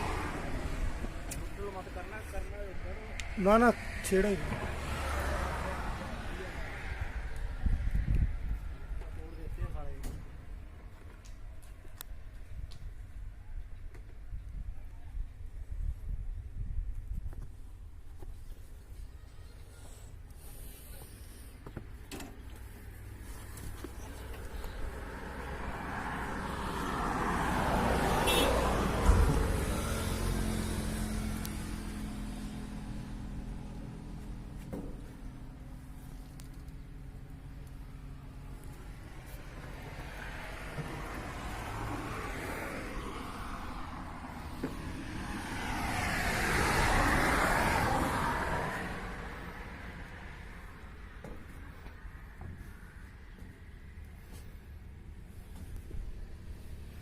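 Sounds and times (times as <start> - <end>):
vehicle driving past: 0.0 - 7.8, 24.0 - 36.2, 37.0 - 52.0.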